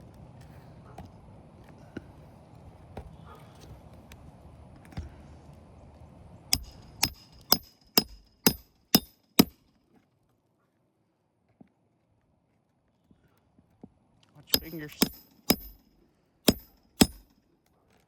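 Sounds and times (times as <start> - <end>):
hammer striking metal: 6.5 - 9.6, 14.5 - 15.9, 16.5 - 17.4.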